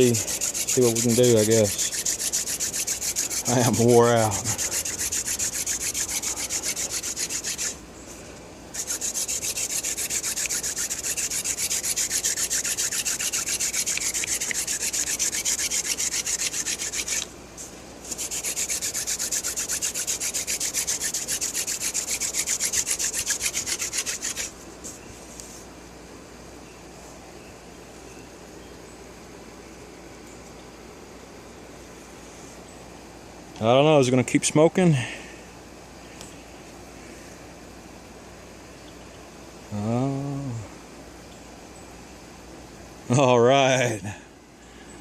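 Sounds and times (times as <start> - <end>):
wood-on-wood rubbing: 0.0 - 7.8, 8.7 - 17.3, 18.0 - 25.6.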